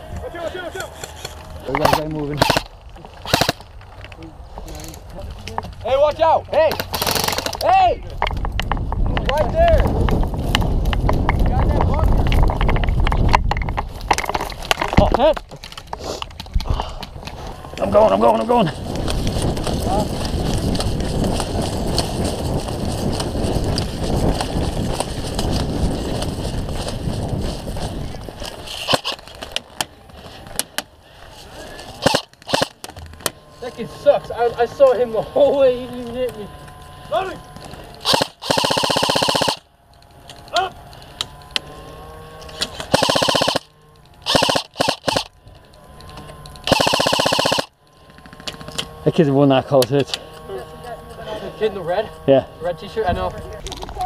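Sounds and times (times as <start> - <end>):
gear jostling: 0.3 - 33.8
airsoft rifle automatic bursts: 1.8 - 3.6, 6.8 - 7.6, 32.0 - 32.8, 38.0 - 39.7, 42.9 - 45.4, 46.6 - 48.6
running footsteps: 8.3 - 33.2.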